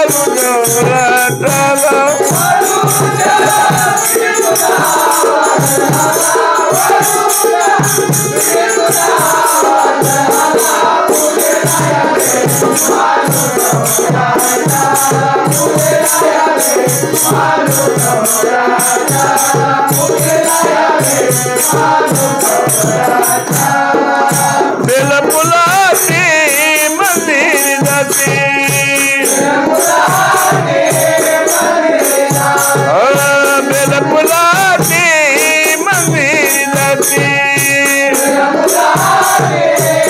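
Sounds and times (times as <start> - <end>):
hand drum beat: 0.0 - 40.0
harmonium melody: 0.0 - 40.0
jingling hand percussion: 0.0 - 40.0.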